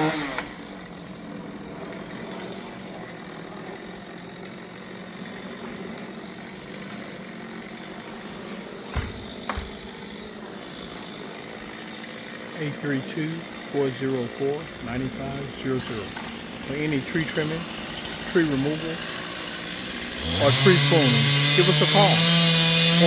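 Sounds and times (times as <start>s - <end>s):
short thumps: 8.9s - 10.0s.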